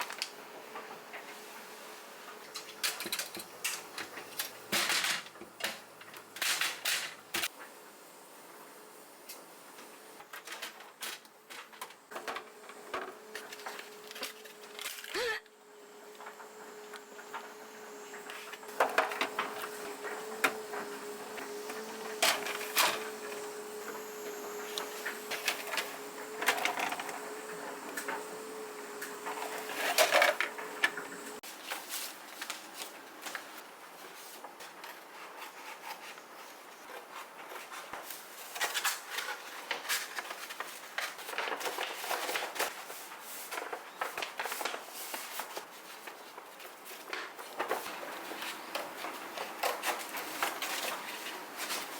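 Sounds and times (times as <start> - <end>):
steady hum: 12.2 - 31.4.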